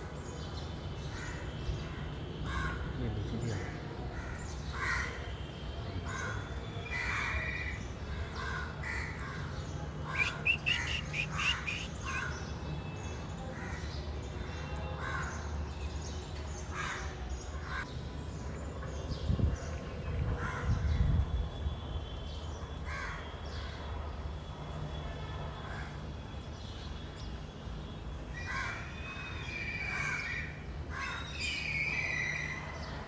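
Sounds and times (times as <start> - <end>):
crows cawing: 2.5 - 2.9, 3.6 - 5.2.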